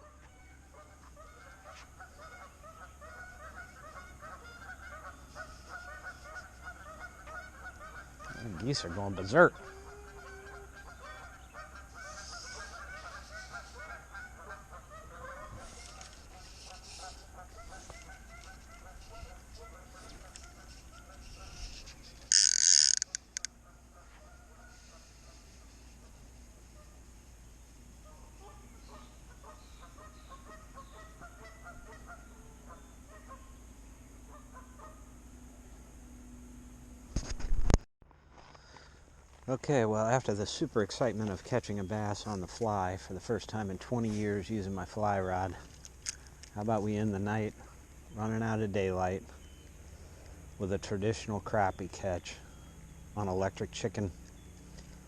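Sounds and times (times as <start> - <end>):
geese honking: 0.0 - 27.1, 28.0 - 33.6, 34.2 - 35.1.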